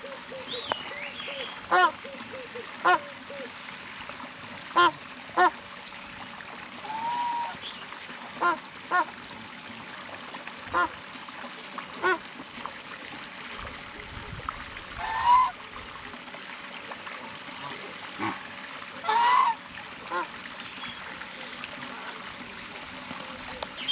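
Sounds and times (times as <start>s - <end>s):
wading birds honking: 1.3s - 3.6s, 4.7s - 5.6s, 6.8s - 7.7s, 8.4s - 9.2s, 10.7s - 11.0s, 12.0s - 12.3s, 15.0s - 15.6s, 17.6s - 21.2s.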